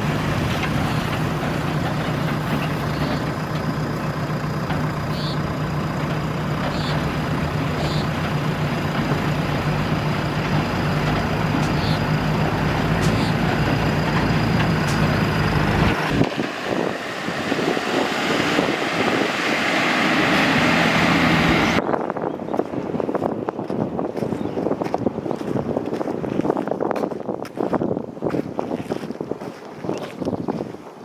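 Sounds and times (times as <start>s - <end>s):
diesel engine humming: 0.0s - 21.8s
rough machine noise: 0.0s - 21.8s
wind on microphone: 6.9s - 31.0s.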